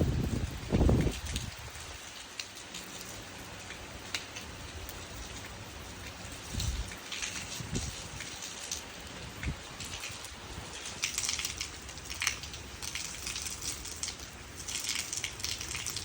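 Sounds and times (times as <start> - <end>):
raindrops pattering and splashing: 0.0 - 16.0
steady rain falling: 0.0 - 16.0.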